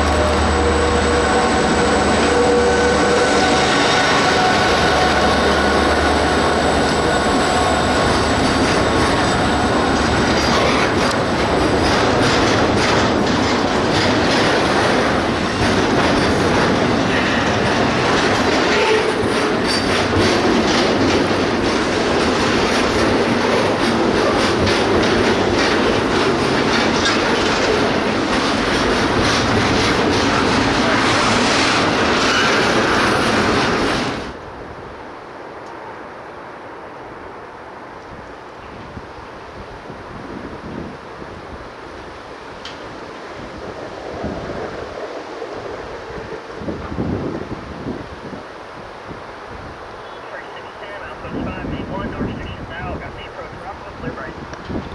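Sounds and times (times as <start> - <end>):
wheels clicking over rail joints: 0.0 - 34.3
train rumbling past: 0.0 - 54.9.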